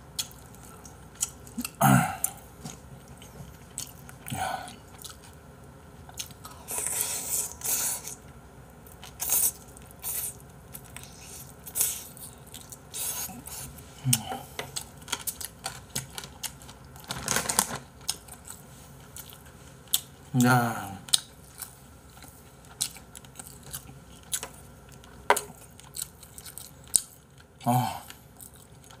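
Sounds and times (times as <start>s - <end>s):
person chewing wetly: 0.2s - 5.4s, 6.1s - 8.2s, 8.8s - 17.0s, 21.0s - 29.0s
paper tissue rustling: 17.0s - 17.9s.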